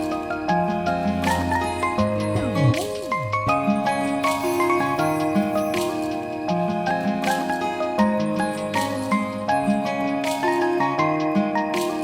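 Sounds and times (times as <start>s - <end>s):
sustained instrumental tones: 0.0s - 9.5s
bell-like mallet notes: 0.0s - 9.9s.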